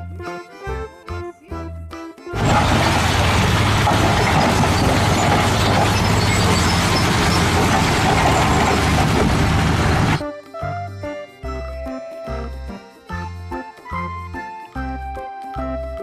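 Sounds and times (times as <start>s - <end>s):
machine humming and rattling: 2.4s - 10.2s.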